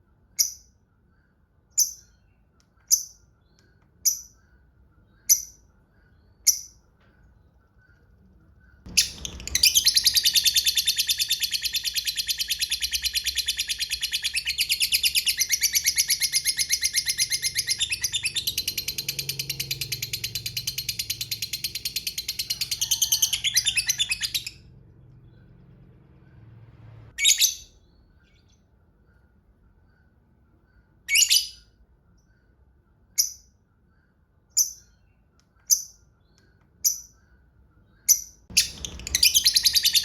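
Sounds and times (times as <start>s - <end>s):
lovebird chattering trill: 38.1s - 40.0s.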